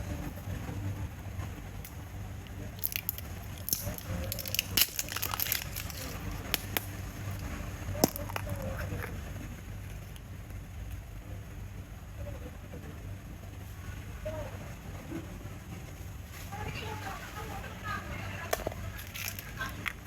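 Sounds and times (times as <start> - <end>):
plastic packaging crackling: 2.4 - 9.2, 18.5 - 20.0.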